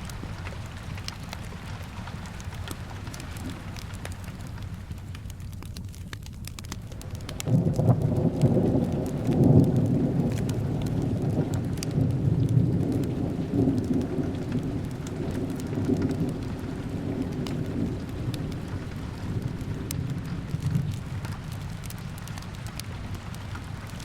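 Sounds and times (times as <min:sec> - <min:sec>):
fireplace crackles: 0:00.0 - 0:24.0
steady rain: 0:00.0 - 0:24.0
thunder rolling: 0:07.0 - 0:24.0.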